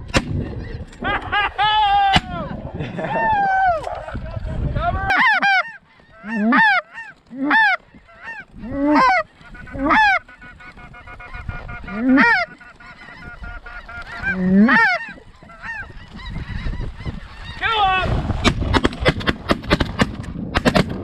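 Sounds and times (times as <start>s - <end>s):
goose honks: 5.1s - 16.6s.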